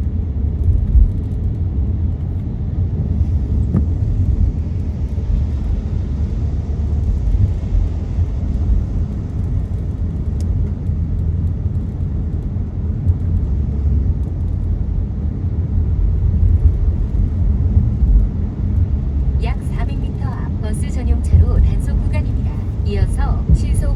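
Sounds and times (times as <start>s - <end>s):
car driving rumble: 0.0s - 23.9s.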